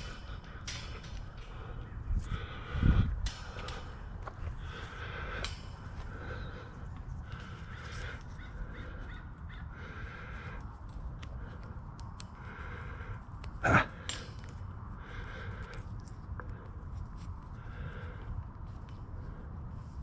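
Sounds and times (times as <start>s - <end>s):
bird harsh calls: 4.6s - 10.6s.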